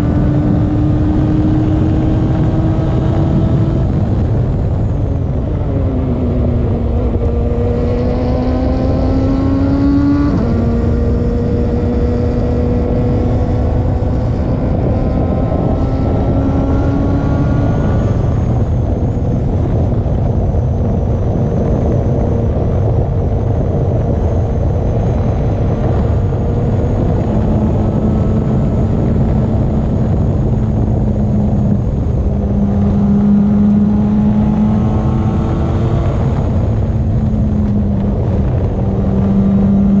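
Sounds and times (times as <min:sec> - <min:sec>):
race car engine at speed: 0:00.0 - 0:40.0
wind and road noise: 0:00.0 - 0:40.0.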